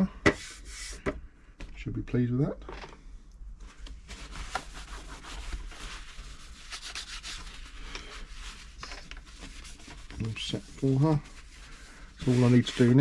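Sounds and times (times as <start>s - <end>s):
rubbing and scuffing handling noise: 0.4s - 1.0s, 3.6s - 13.0s.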